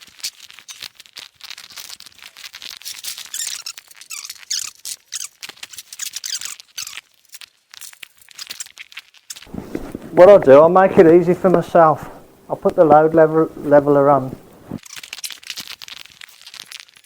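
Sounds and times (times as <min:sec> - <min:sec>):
rusty bolt threads squeaking: 0:03.0 - 0:09.4.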